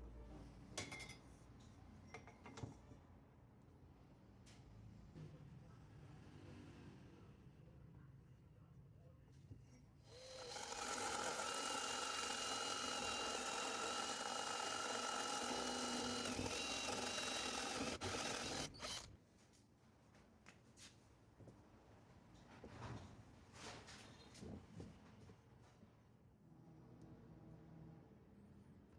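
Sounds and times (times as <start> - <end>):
power tool motor whine: 10.1 - 19.1.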